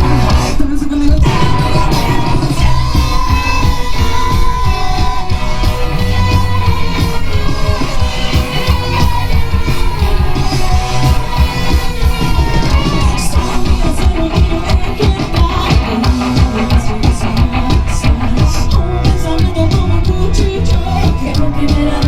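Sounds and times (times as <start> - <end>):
rock band playing live: 0.0 - 22.0.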